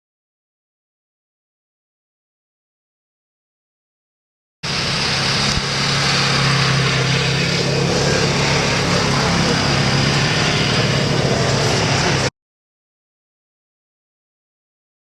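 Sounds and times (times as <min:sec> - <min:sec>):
vehicle engine droning: 0:04.6 - 0:12.3.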